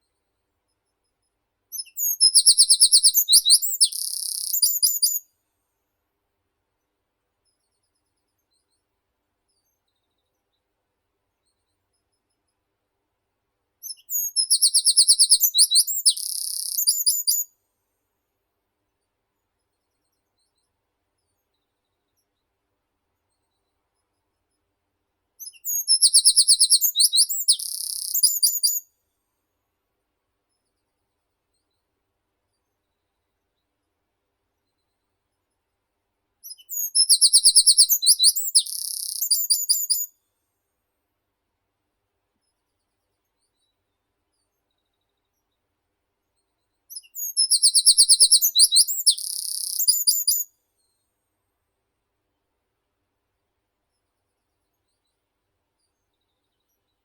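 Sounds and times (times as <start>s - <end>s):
songbird singing: 1.7s - 5.3s, 13.8s - 17.5s, 25.4s - 28.9s, 36.4s - 40.1s, 46.9s - 50.5s.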